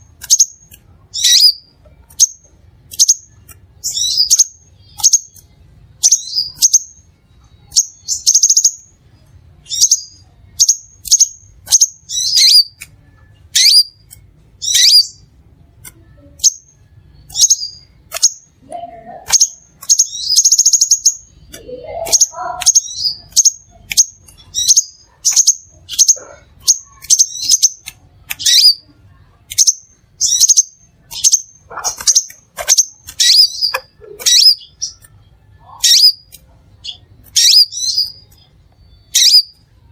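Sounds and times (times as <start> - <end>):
buzzy bird trills: 0.2 - 7.0, 9.7 - 12.8, 13.5 - 15.3, 16.0 - 28.9, 29.5 - 39.7
sunbird chirping: 16.0 - 27.8.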